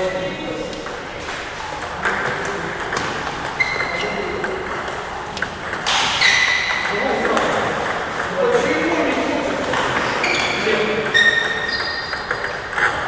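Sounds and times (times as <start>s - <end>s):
hubbub of a hall: 0.0s - 13.0s
table tennis ball clicking: 1.8s - 13.0s
short high squeaks: 3.6s - 4.1s, 6.1s - 6.9s, 10.2s - 12.5s.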